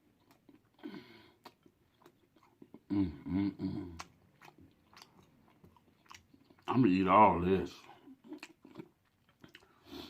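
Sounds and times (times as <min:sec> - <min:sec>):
chewing noodles: 0:00.0 - 0:02.9, 0:03.6 - 0:10.0
man speaking: 0:06.6 - 0:08.0.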